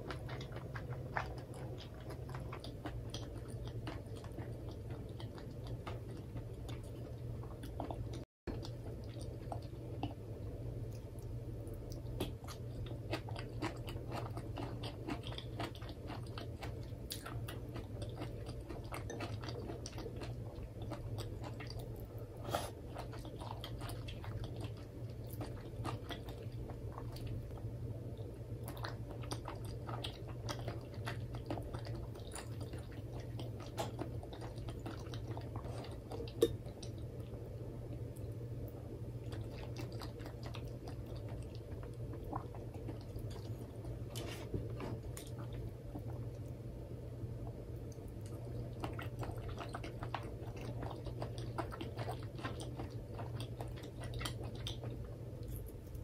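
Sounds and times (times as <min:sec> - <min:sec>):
wet chewing with mouth clicks: 0:00.0 - 0:46.6, 0:47.4 - 0:56.0.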